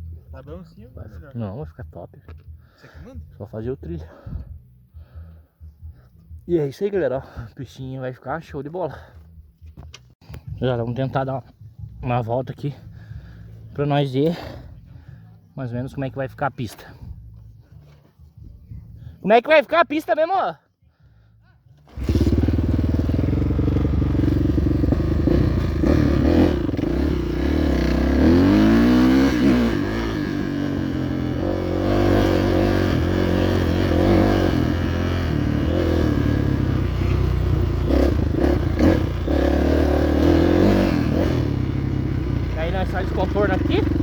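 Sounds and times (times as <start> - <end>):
dirt bike engine revving: 21.9 - 44.0.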